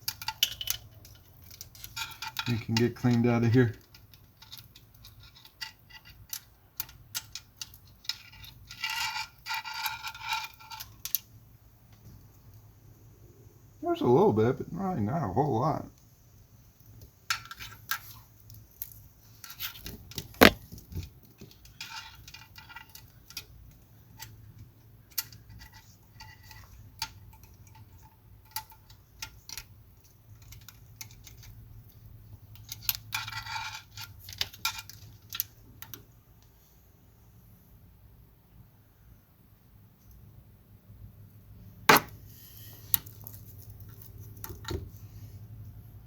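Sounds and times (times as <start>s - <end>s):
sharp knock: 20.4s - 20.6s.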